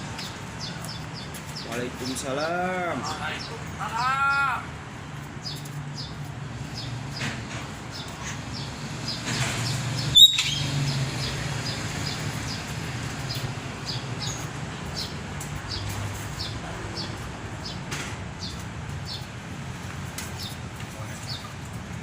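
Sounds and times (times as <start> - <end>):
songbird chirping: 5.4 - 19.3
whistled bird call: 10.1 - 10.7.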